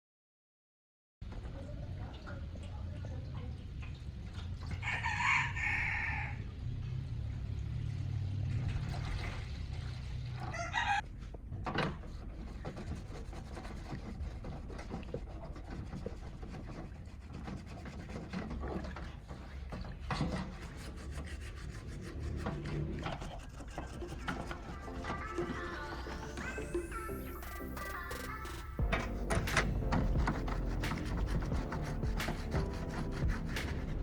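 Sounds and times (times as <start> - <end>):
rooster crowing: 4.8 - 6.5, 10.5 - 11.0
hand rasping on a workpiece: 12.1 - 18.9, 20.1 - 25.7, 28.8 - 34.0.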